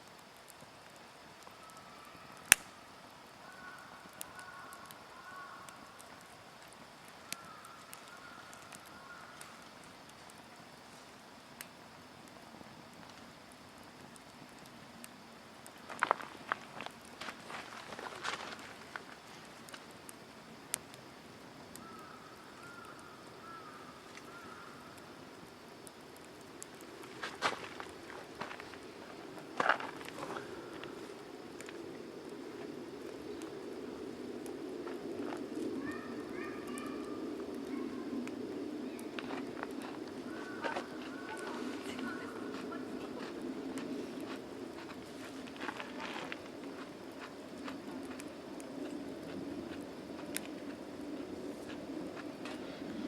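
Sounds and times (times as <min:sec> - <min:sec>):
campfire crackling: 0:00.0 - 0:53.0
faint whistle from burning wood: 0:00.0 - 0:53.0
steady low hiss: 0:00.0 - 0:53.0
sharp crack: 0:02.4 - 0:02.8.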